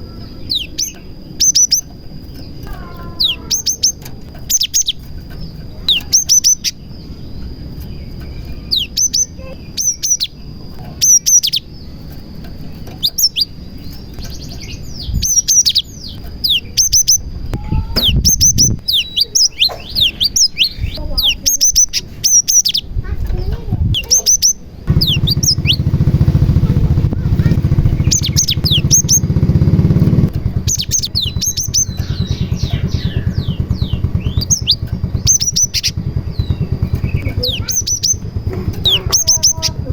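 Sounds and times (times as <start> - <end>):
bird chirping: 0.0 - 39.9
loud low rumble: 24.8 - 39.9.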